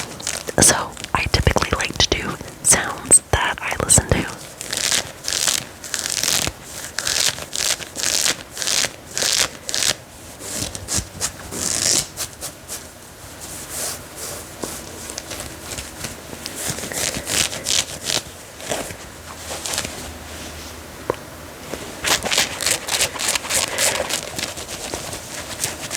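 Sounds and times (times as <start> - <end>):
fabric being scratched: 4.3 - 20.6, 22.0 - 25.9.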